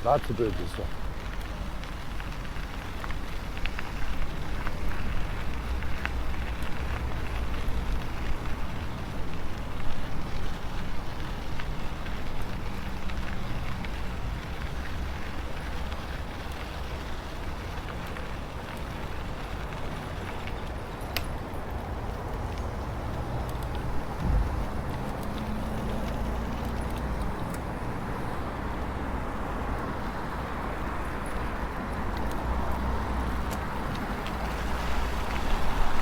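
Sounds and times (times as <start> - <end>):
crackle: 0.0 - 36.0
wind rushing over microphone: 21.9 - 25.8.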